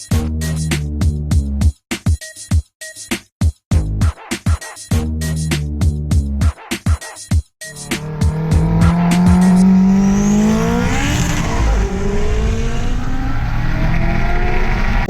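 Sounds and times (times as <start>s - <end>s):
background music: 7.6s - 13.0s
car passing by: 7.7s - 15.0s
race car engines at full throttle: 7.7s - 15.0s.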